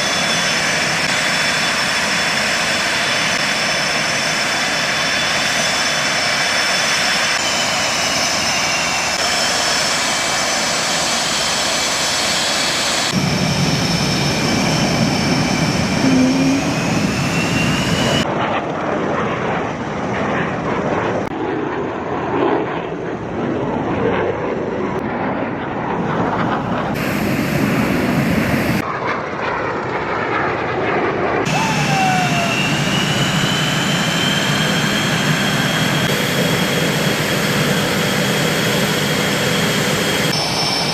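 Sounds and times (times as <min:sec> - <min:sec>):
high turbine whine: 0:00.0 - 0:18.9, 0:25.4 - 0:28.9, 0:31.4 - 0:40.9
fighter jet engine roar: 0:00.0 - 0:40.9.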